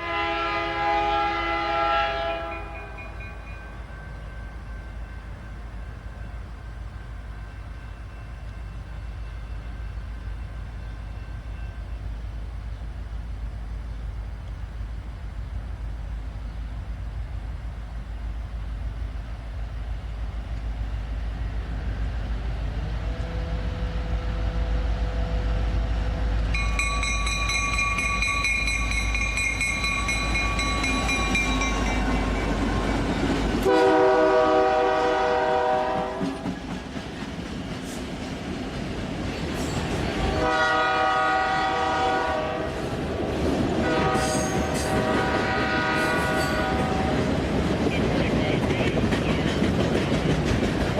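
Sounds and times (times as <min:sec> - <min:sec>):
train air horn blasts: 0:00.0 - 0:03.8, 0:23.0 - 0:26.4, 0:33.6 - 0:36.6, 0:40.1 - 0:42.9, 0:43.8 - 0:47.3
train rumbling past: 0:00.0 - 0:50.9.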